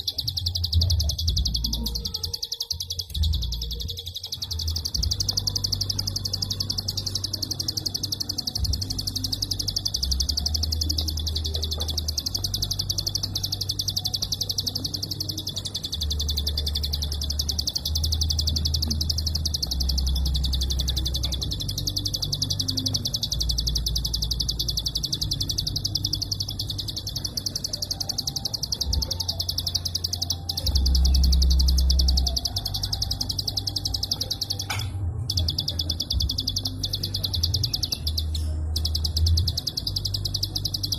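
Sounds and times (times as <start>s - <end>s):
bird rapid clicking song: 0.0s - 40.9s.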